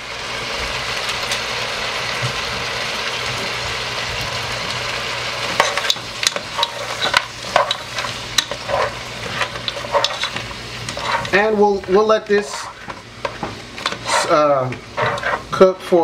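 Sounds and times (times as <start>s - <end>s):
food sizzling in a pot: 0.0s - 16.0s
utensil scraping a pot: 5.5s - 15.6s.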